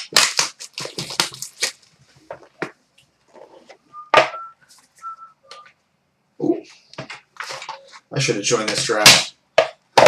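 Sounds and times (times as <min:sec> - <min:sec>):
packaging tearing and rustling: 0:00.0 - 0:02.0.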